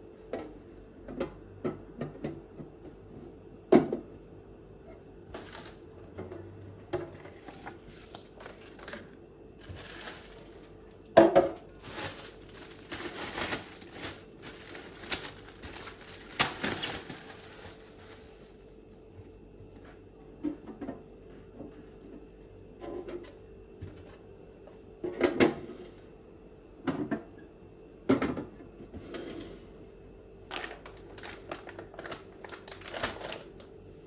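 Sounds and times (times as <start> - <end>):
faint steady hum: 0.0 - 34.0
crinkling and rustling: 5.3 - 19.3, 30.5 - 33.7.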